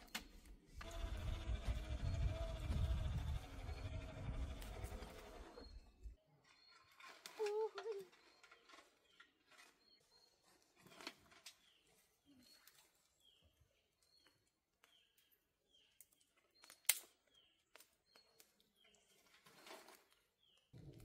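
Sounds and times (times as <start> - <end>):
faint bird chirping: 11.4 - 20.8.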